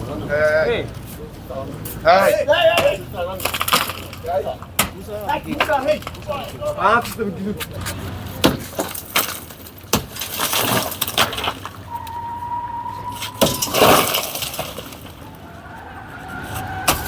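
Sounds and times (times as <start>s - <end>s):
sharp knocks and breaking: 8.4s - 11.8s, 13.4s - 15.3s
steady high tone: 11.9s - 14.3s.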